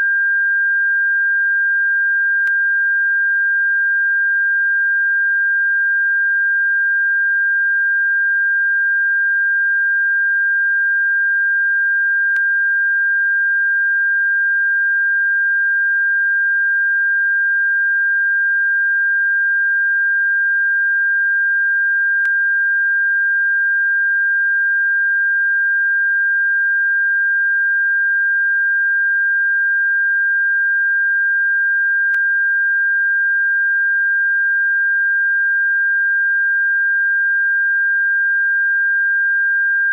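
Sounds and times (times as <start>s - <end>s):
high-pitched electronic sine tone: 0.0s - 3.2s.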